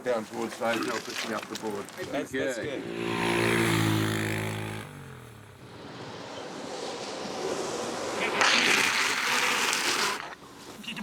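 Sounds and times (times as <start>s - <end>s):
vehicle engine passing: 2.6s - 9.2s.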